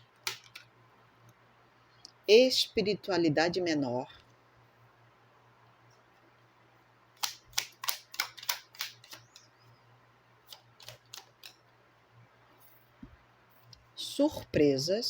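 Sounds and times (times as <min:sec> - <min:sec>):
playing cards snapping on table: 0:07.2 - 0:09.4.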